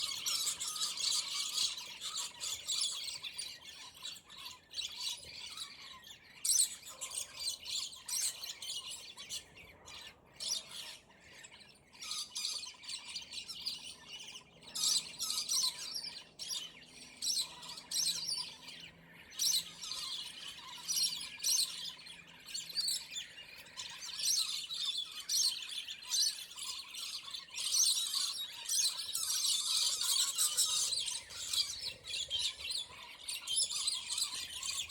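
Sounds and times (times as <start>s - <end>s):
lorikeets squawking and chattering: 0.0s - 34.9s.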